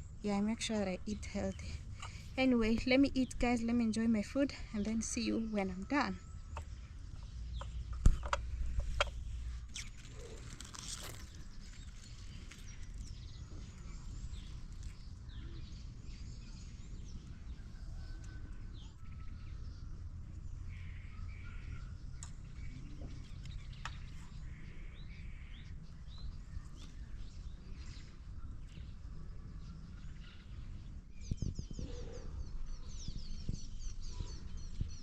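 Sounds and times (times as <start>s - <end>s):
steady low rumble: 0.0s - 17.9s
birds chirping: 0.0s - 35.0s.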